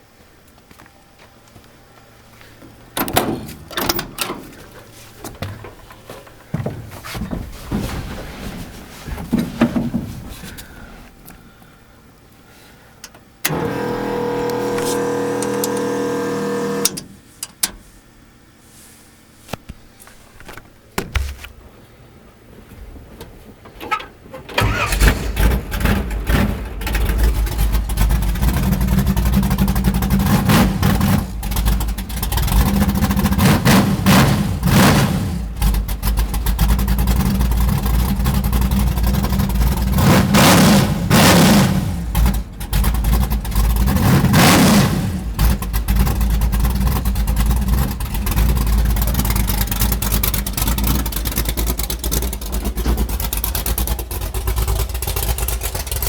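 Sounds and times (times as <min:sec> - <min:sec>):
car engine starting and revving: 0:13.4 - 0:17.1, 0:24.6 - 0:51.4.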